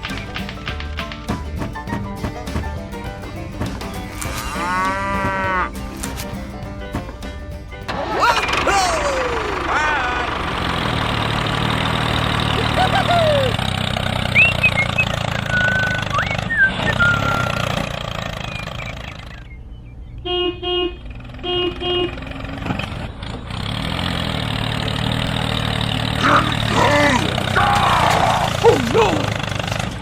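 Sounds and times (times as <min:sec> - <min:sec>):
short horn toots: 0:04.1 - 0:06.4
small engine running: 0:07.9 - 0:19.5, 0:21.2 - 0:30.0
short gliding chirps: 0:14.2 - 0:20.2.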